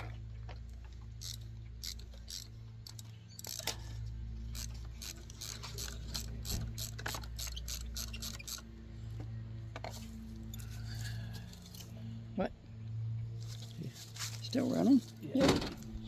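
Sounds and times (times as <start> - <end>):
engine running: 0.0 - 16.0
sharp mechanical clicks: 1.2 - 3.9, 4.5 - 8.7.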